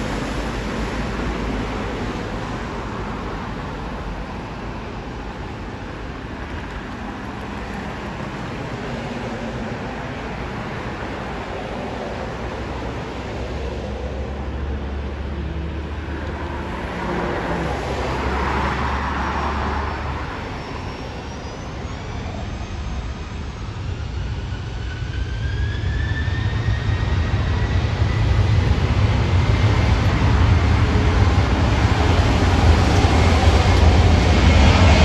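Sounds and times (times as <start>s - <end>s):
aircraft engines rumbling: 0.0s - 35.0s
rising engine whine: 7.6s - 35.0s.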